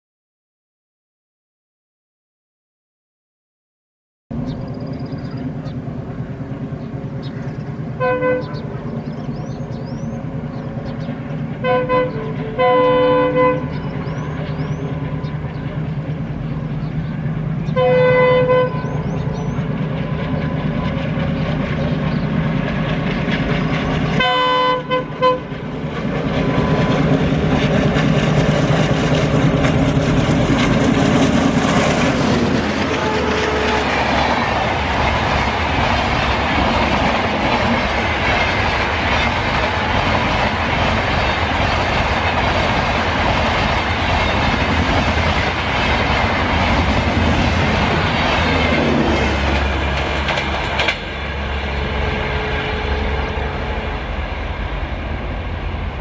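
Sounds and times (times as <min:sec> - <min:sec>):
locomotive engine droning: 0:04.3 - 0:56.0
train horn: 0:08.0 - 0:08.8, 0:11.6 - 0:15.2, 0:17.7 - 0:19.4, 0:24.2 - 0:25.6, 0:32.8 - 0:34.4, 0:51.1 - 0:54.5
wheels clattering on rails: 0:25.2 - 0:51.4.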